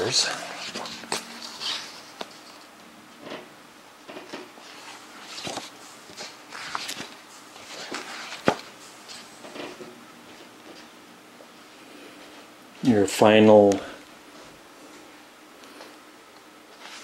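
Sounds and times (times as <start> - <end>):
book pages rustling: 0.0 - 2.7, 4.6 - 10.8, 16.7 - 17.0.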